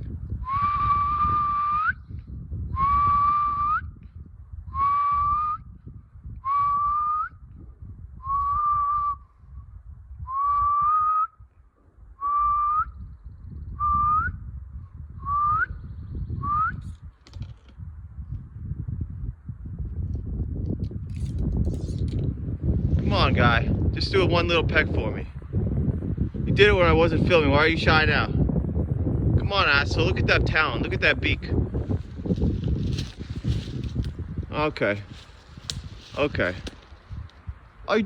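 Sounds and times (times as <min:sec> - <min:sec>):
person whistling: 0:00.4 - 0:02.0, 0:02.8 - 0:03.9, 0:04.7 - 0:05.6, 0:06.4 - 0:07.4, 0:08.2 - 0:09.3, 0:10.3 - 0:11.4, 0:12.2 - 0:13.0, 0:13.8 - 0:14.4, 0:15.2 - 0:15.8, 0:16.4 - 0:16.8.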